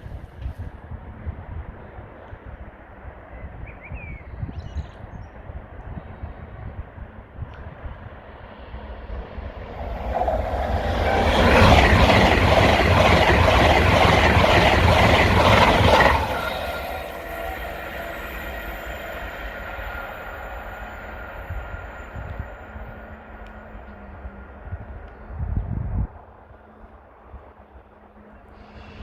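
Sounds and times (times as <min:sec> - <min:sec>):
high-speed train passing: 0:05.4 - 0:29.0
wheels rattling on rail: 0:08.8 - 0:23.0.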